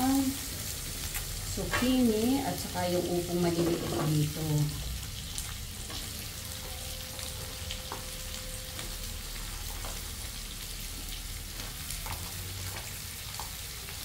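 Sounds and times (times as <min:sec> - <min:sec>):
vegetables sizzling in a wok: 0:00.0 - 0:14.0.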